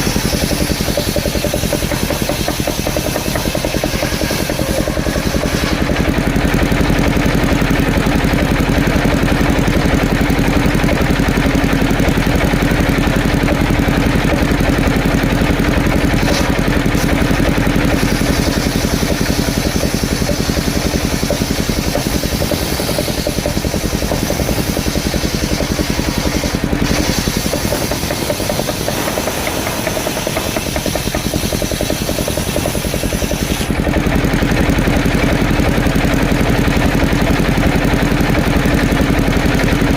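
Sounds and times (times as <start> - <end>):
engine-driven circular saw running: 0.0 - 39.9.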